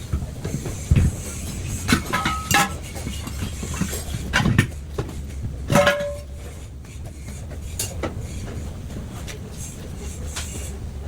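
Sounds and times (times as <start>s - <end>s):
metal tools clanking on wheel rim: 1.9s - 4.8s, 5.7s - 6.5s.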